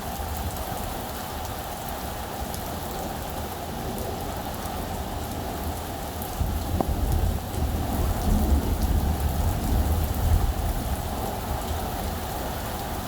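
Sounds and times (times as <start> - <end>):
heavy rain: 0.0 - 13.0
low rumble of thunder: 6.3 - 12.2.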